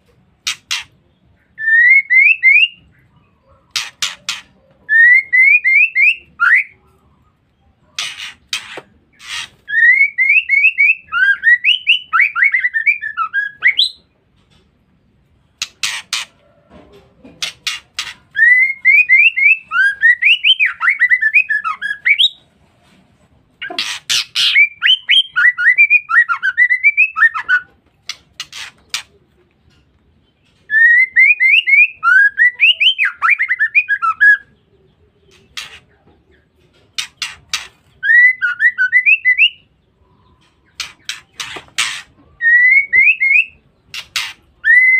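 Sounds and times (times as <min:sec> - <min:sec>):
bird chirping phrases: 0:23.6 - 0:44.9.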